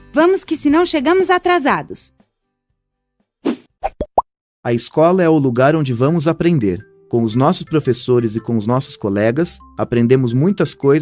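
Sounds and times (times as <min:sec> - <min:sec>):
cartoon swish: 0:03.4 - 0:04.2
cartoon pop: 0:03.4 - 0:04.3.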